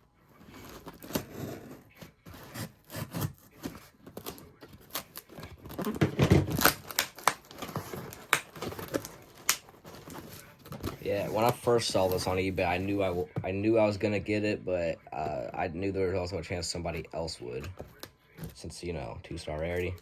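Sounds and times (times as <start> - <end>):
cardboard box rustling and tearing: 0.4 - 13.3.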